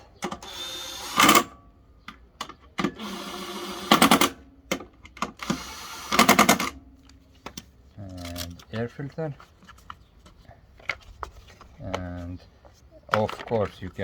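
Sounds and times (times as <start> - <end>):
air filter rustling and scraping: 7.2 - 14.0.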